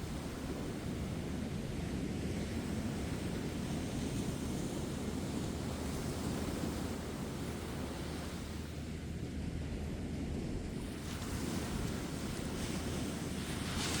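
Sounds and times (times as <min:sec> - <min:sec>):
ocean surf breaking on beach: 0:10.8 - 0:14.0.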